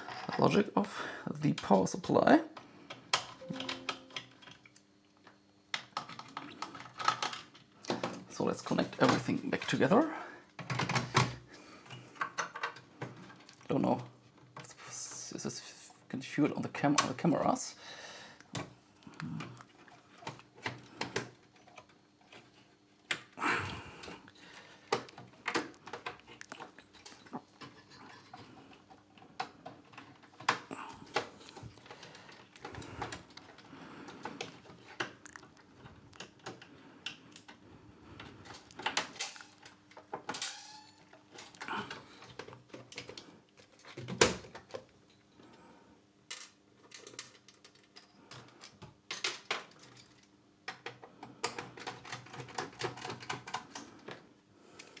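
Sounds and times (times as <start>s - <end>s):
metal parts clattering: 38.5s - 41.6s.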